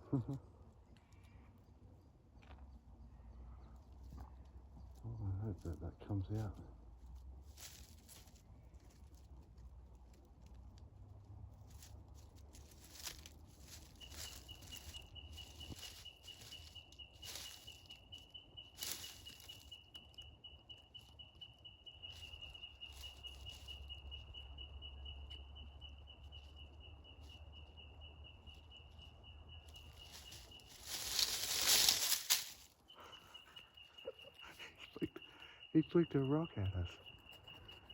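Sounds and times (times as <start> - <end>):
rustles in leaf litter: 7.1 - 9.4, 11.6 - 20.2, 21.9 - 24.2, 29.6 - 32.8.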